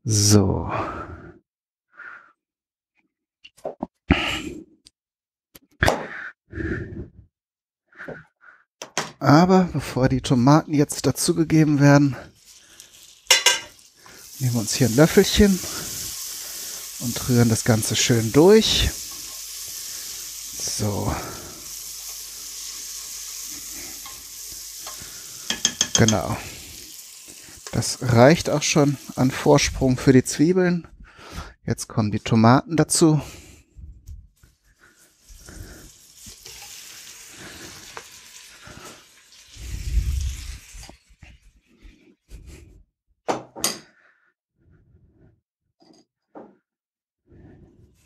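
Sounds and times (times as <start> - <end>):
onions sizzling in a pot: 10.2 - 30.4, 34.4 - 41.5
spoon stirring: 11.8 - 20.5, 21.8 - 26.3.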